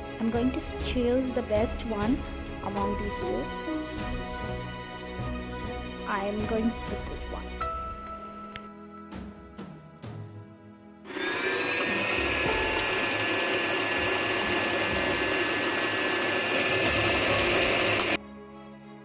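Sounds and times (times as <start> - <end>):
sewing machine motor whine: 11.1 - 18.2.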